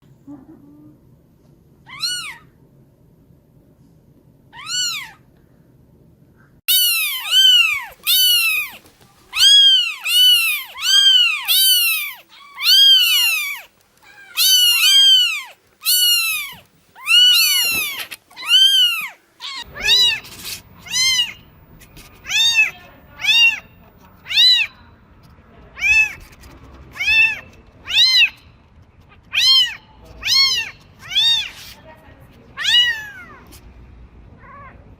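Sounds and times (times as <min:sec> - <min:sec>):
faint low hum: 0:00.0 - 0:34.9
kittens meowing: 0:01.9 - 0:02.5, 0:04.6 - 0:05.2, 0:06.7 - 0:21.5, 0:22.1 - 0:24.8, 0:25.8 - 0:28.5, 0:29.1 - 0:31.8, 0:32.6 - 0:33.5.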